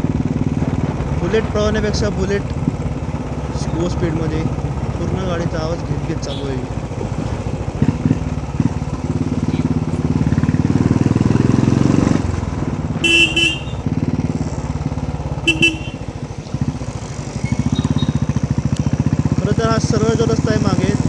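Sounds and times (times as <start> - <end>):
motorcycle engine running: 0.0 - 21.0
vehicle horn beeps: 13.0 - 13.9, 15.3 - 16.3, 17.4 - 18.3.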